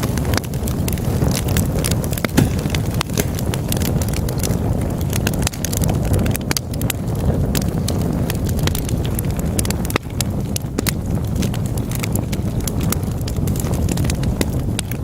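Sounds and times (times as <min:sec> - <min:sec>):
log fire crackling: 0:00.0 - 0:15.0.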